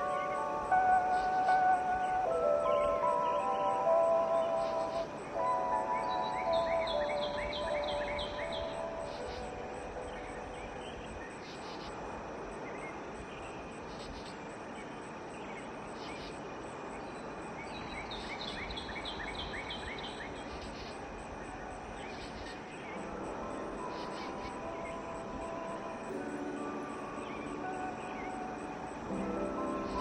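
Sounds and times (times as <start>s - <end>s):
background rumble and hiss: 0.0s - 30.0s
bird chirping: 0.0s - 30.0s.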